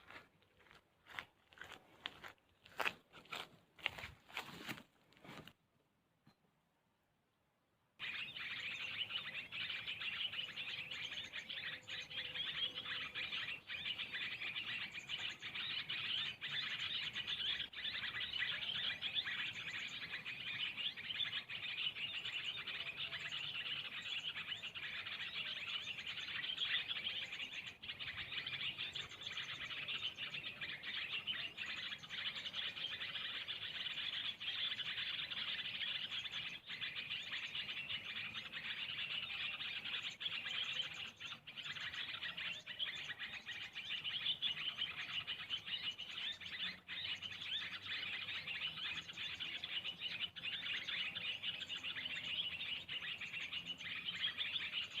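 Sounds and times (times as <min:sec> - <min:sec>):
small birds chirping: 0:08.0 - 0:55.0.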